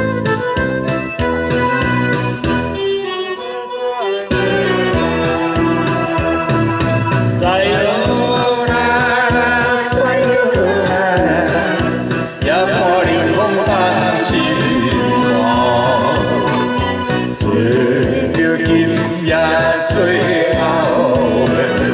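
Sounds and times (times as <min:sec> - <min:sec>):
karaoke backing track: 0:00.0 - 0:21.9
group of voices singing: 0:02.8 - 0:21.9.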